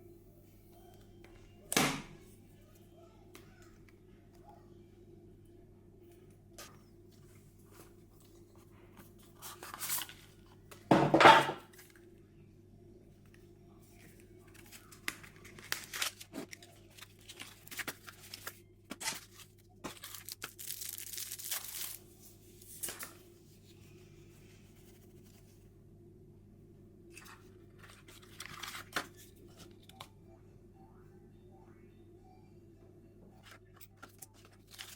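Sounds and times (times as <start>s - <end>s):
packaging crinkling and rustling: 14.0s - 23.2s, 27.1s - 29.8s, 33.4s - 34.9s
packaging ripping: 14.5s - 22.0s.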